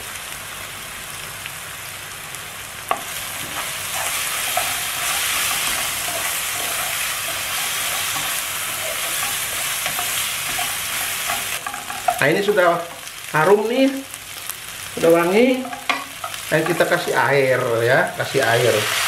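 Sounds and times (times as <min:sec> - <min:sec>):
paste sizzling in oil: 0:02.5 - 0:19.0
spatula scraping wok: 0:02.9 - 0:13.1, 0:15.0 - 0:19.0.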